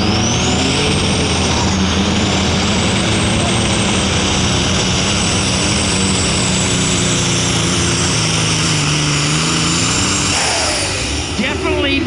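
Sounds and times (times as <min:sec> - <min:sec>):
tractor engine running hard: 0:00.0 - 0:12.0
announcer speaking: 0:10.4 - 0:12.0.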